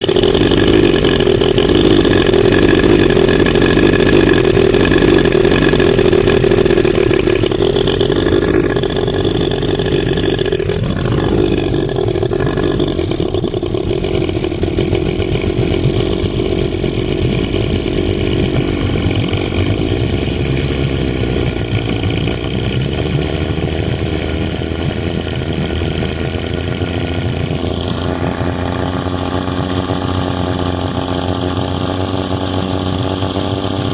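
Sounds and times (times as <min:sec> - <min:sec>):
boat motor running: 0:00.0 - 0:33.9.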